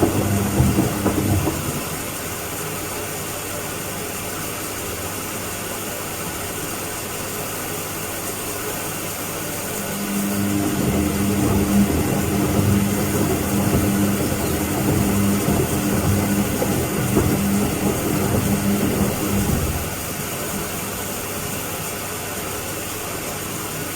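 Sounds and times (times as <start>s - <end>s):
washing machine drum churning: 0.0s - 3.2s, 9.5s - 22.0s
low steady hum: 9.8s - 20.0s.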